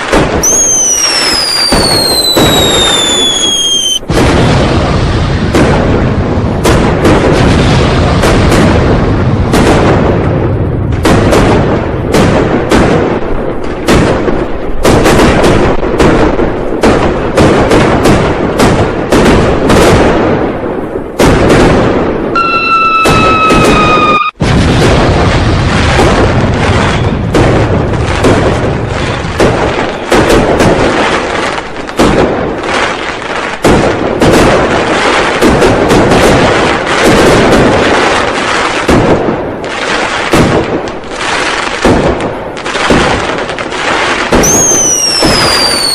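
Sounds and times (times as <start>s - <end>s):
firecrackers and fireworks banging: 0.0s - 45.9s
firework whistle: 0.4s - 4.1s, 22.4s - 24.4s, 44.4s - 45.9s.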